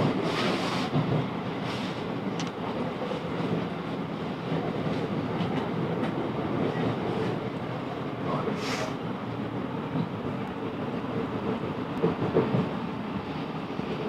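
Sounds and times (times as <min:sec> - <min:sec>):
train wheels rumbling on track: 0:00.0 - 0:14.0
brief hiss: 0:08.6 - 0:09.0.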